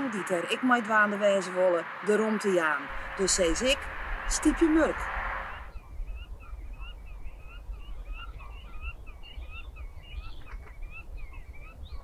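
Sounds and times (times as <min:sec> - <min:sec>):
low steady rumble: 0:00.0 - 0:09.1.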